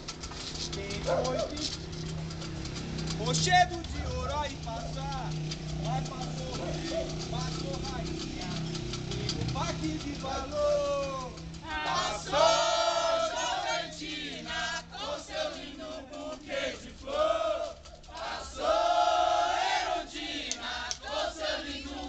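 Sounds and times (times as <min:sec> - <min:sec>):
group of voices chanting: 0:11.7 - 0:22.0.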